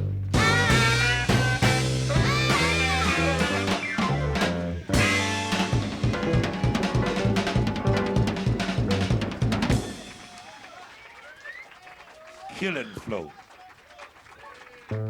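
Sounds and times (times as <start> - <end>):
bass: 0.0 - 10.4
drums steady beat: 0.0 - 11.7
electric guitar bending lines: 0.4 - 10.3.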